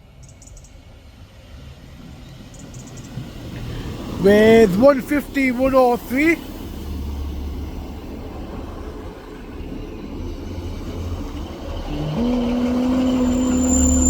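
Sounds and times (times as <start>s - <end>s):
train engine and wheel rumble: 0.0s - 14.0s
train brakes squealing: 9.5s - 14.0s.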